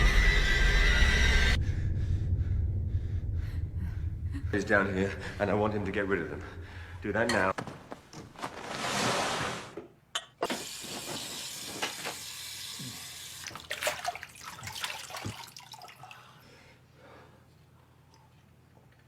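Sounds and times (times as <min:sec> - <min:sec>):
water running: 0:10.4 - 0:16.3.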